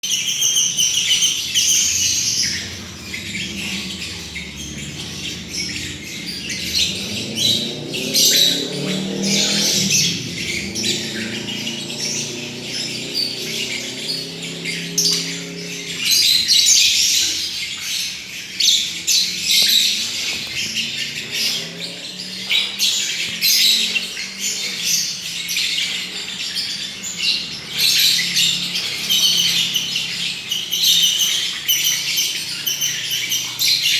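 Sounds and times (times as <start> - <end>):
lovebirds chattering and squawking: 0.1 - 33.9
low droning tone: 1.8 - 17.9.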